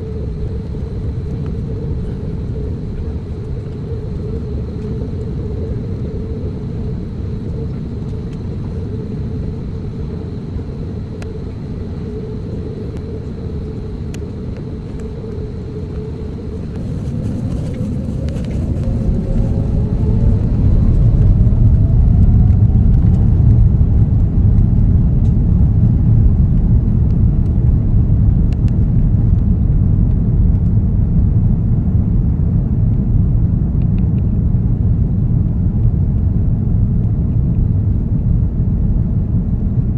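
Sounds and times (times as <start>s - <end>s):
engines spooling up whine: 0.0s - 24.0s
jet engines heard in cabin: 0.0s - 39.9s.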